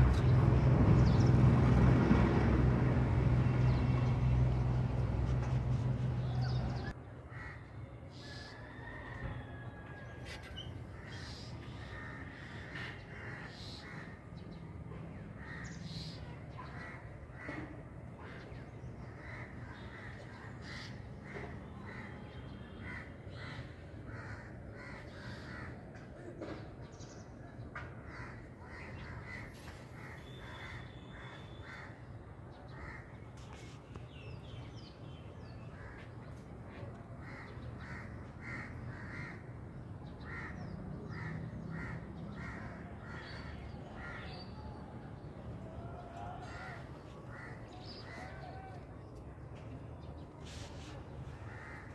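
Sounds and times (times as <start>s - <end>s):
birds calling: 26.6s - 33.1s, 37.2s - 44.6s.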